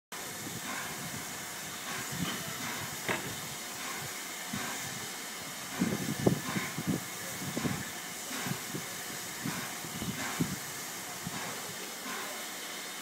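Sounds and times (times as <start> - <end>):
steam hissing: 0.2 - 13.0.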